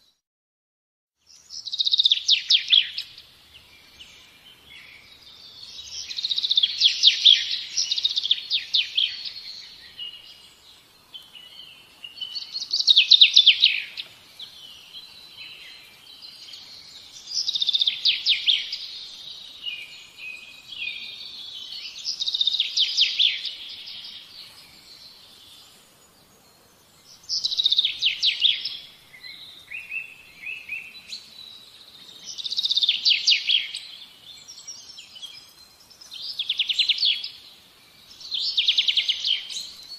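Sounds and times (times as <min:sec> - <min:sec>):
soft bird chirps: 0:01.2 - 0:39.9
songbird trilling: 0:04.8 - 0:10.4, 0:11.4 - 0:24.3, 0:27.2 - 0:37.4, 0:38.1 - 0:39.9.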